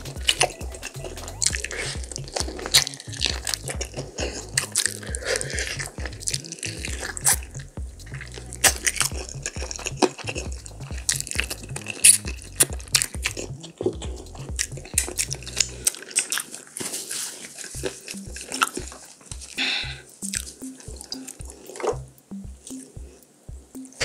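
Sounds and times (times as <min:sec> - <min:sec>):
background music with bass: 0:00.0 - 0:15.9, 0:17.8 - 0:24.0
biting and chewing meat: 0:00.0 - 0:23.2
mouth clicks and smacks: 0:00.0 - 0:24.0.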